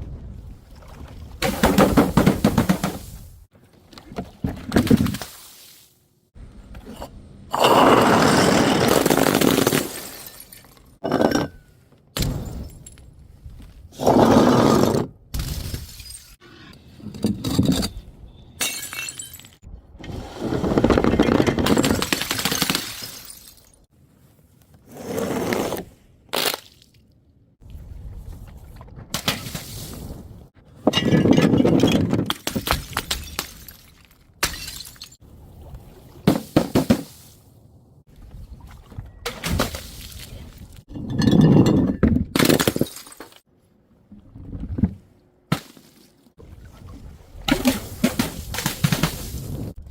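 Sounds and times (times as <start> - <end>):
glass bottles smashing: 8.4 - 11.6, 18.6 - 19.6, 21.3 - 23.9, 30.9 - 35.2, 40.9 - 43.4.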